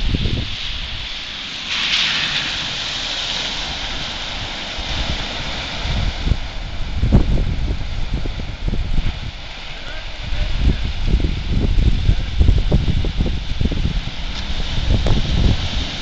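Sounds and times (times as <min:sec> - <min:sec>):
wind buffeting microphone: 0:00.0 - 0:01.3, 0:02.2 - 0:16.0
rushing wind: 0:00.0 - 0:16.0
surging water or rain: 0:00.0 - 0:16.0.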